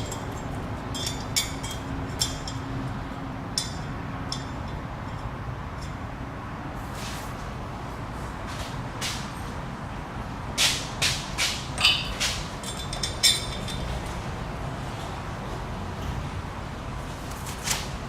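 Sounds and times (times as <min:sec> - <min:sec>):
metal clinking: 0:00.0 - 0:02.7, 0:11.8 - 0:14.2.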